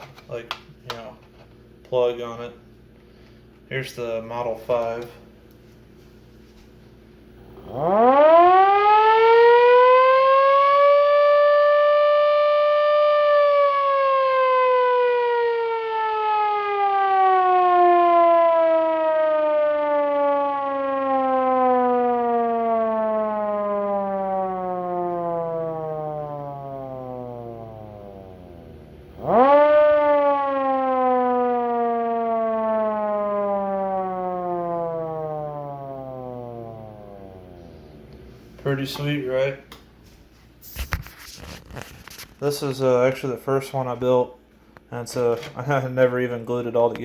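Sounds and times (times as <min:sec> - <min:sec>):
mechanical siren wailing: 0:07.5 - 0:39.5.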